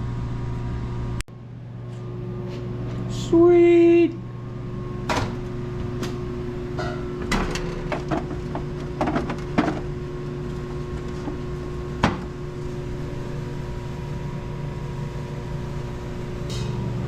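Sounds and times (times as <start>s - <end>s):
mechanical hum: 0.0s - 17.0s
objects knocking on a workbench: 7.9s - 9.9s, 12.0s - 12.3s.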